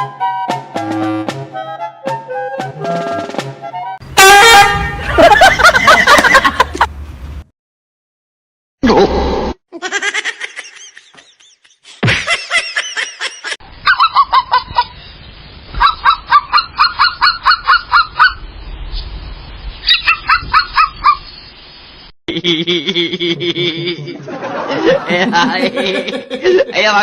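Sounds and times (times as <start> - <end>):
loud sudden sound: 4.0 - 6.0.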